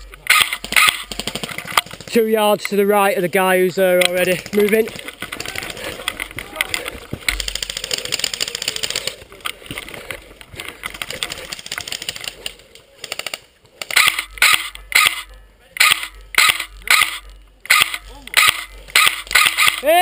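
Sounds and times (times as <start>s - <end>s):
airsoft guns firing bursts: 0.2s - 2.5s, 4.0s - 6.5s, 7.2s - 9.2s, 10.9s - 20.0s.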